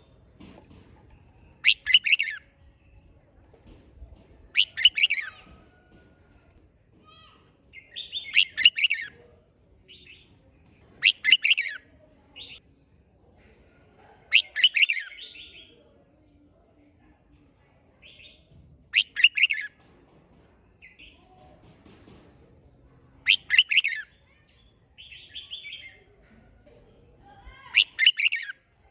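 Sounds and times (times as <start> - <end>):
bird singing warbling phrases: 1.6 - 2.8, 4.5 - 5.4, 7.7 - 9.1, 11.0 - 11.8, 14.3 - 15.7, 19.0 - 19.7, 23.2 - 26.1, 27.7 - 28.6.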